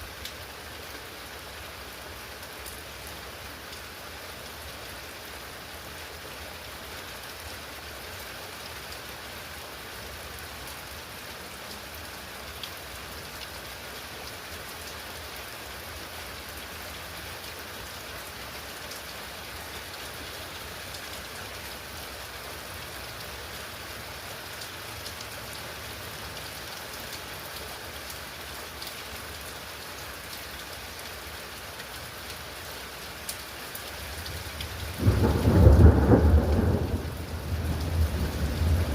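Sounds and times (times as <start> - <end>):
steady rain hiss: 0.0 - 38.9
thunder rumble: 34.9 - 38.9.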